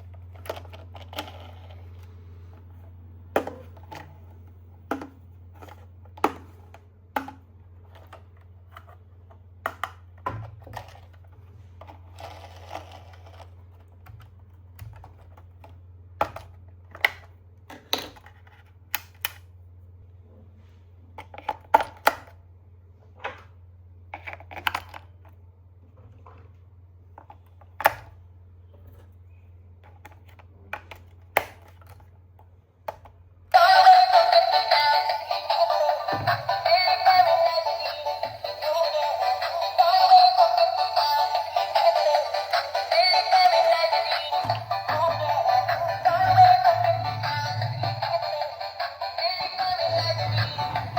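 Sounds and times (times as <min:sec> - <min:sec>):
toys and packaging clicking: 0:00.0 - 0:02.6, 0:07.8 - 0:19.5, 0:24.1 - 0:25.4, 0:29.8 - 0:46.6
music: 0:33.6 - 0:50.9.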